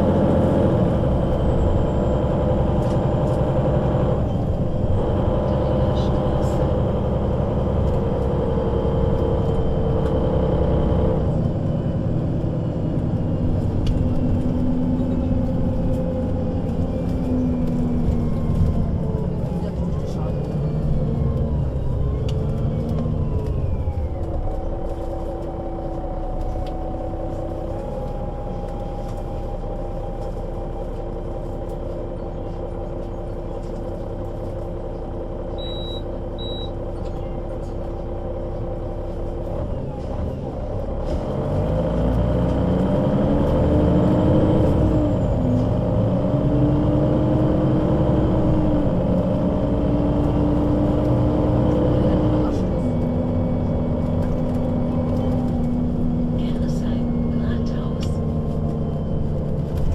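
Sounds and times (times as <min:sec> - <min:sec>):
bus diesel engine: 0:00.0 - 0:59.9
short high beeps: 0:35.6 - 0:36.7.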